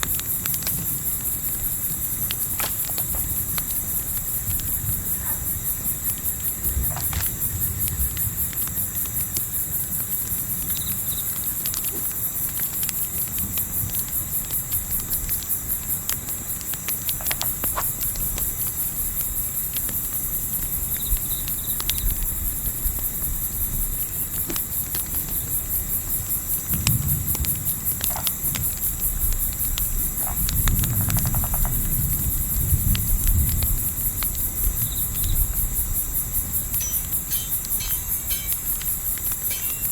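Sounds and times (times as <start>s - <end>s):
campfire crackling and popping: 0.0s - 22.0s
night insects chorus: 0.0s - 39.9s.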